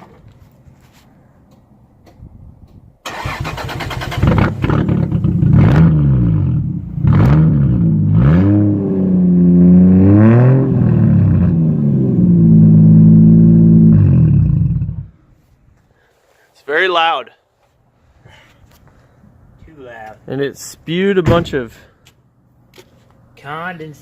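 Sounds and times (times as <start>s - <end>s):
loud car engine revving: 4.1s - 15.1s.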